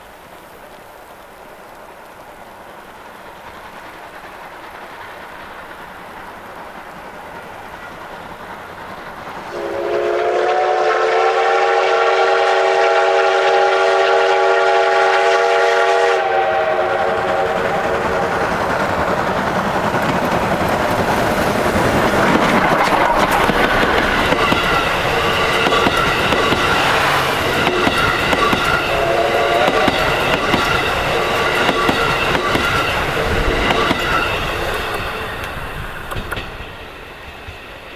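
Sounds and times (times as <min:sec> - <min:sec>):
steam locomotive approaching: 0:00.0 - 0:37.9
wheels clattering over rail joints: 0:17.1 - 0:37.9.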